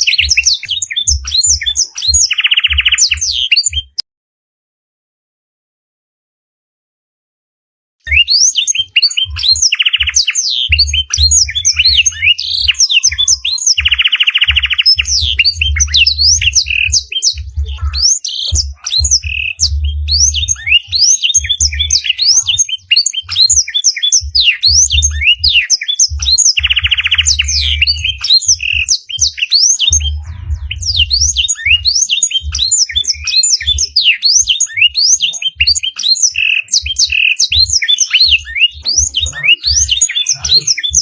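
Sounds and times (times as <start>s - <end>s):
canary singing: 0.0s - 4.0s, 8.0s - 41.0s
buzzy trills: 8.8s - 41.0s
low pulsing hum: 13.8s - 22.6s, 24.2s - 28.8s, 29.9s - 33.9s.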